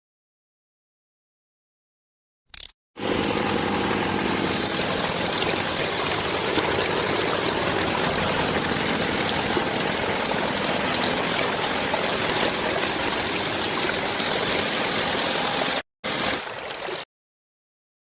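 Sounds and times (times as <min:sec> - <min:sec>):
water running in a stream: 0:03.0 - 0:17.1.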